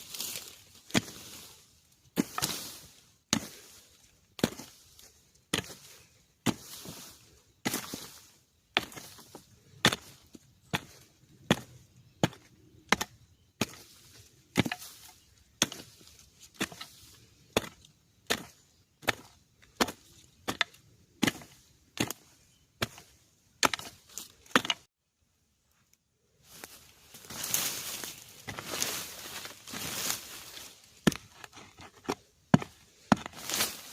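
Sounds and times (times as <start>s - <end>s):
blade chopping bamboo: 14.6s - 16.9s, 17.5s - 22.2s, 23.6s - 24.9s.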